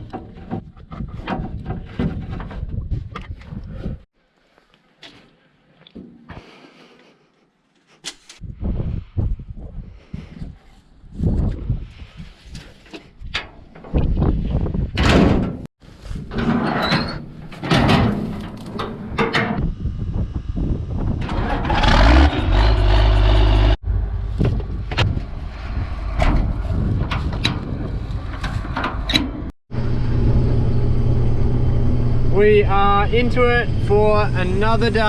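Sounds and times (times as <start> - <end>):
harvester knocks and clatter: 0.0 - 3.5, 16.3 - 19.6
low engine rumble: 19.7 - 35.0.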